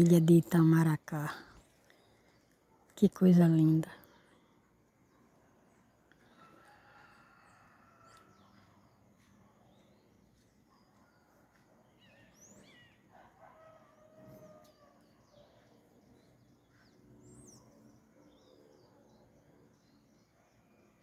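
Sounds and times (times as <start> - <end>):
distant rooster crowing: 6.3 - 8.8, 12.7 - 15.4.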